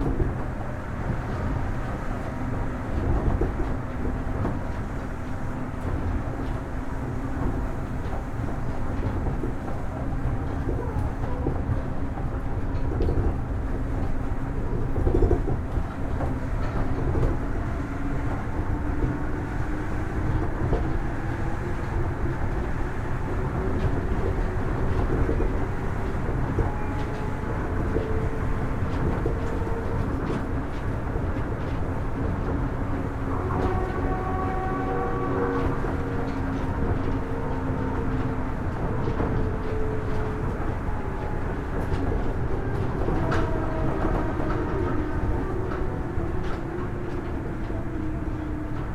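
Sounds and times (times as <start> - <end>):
monorail running gear rumble: 0.0 - 48.9.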